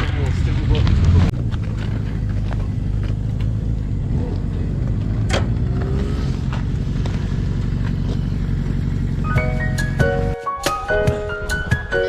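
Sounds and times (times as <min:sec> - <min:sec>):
motorcycle engine idling: 0:01.3 - 0:10.4.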